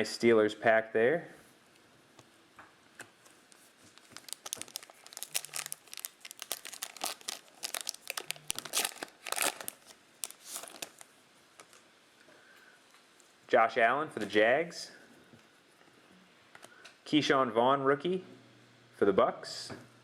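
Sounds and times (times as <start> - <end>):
foil wrapper tearing and crinkling: 3.5 - 11.1.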